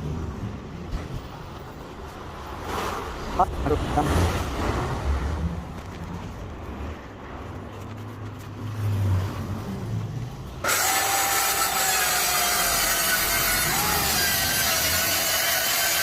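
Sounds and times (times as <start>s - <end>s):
power saw cutting wood: 10.6s - 16.0s.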